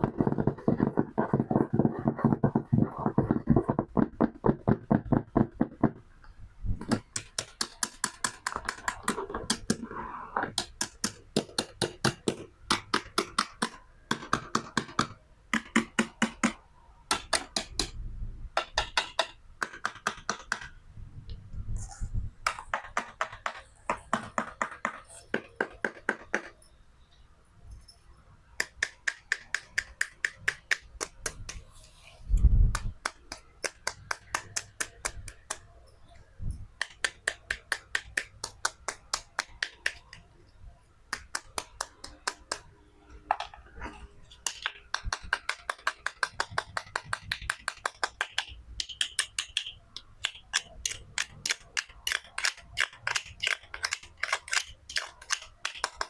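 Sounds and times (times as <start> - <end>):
toy knife clicking through toy food: 44.5 - 56.0.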